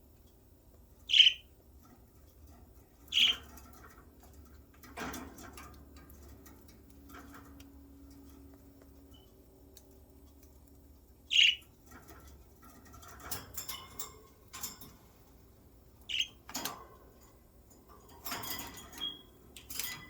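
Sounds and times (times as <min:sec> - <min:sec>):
budgerigar chirps: 0:01.1 - 0:01.4, 0:03.1 - 0:03.4, 0:11.3 - 0:11.6, 0:16.1 - 0:16.3.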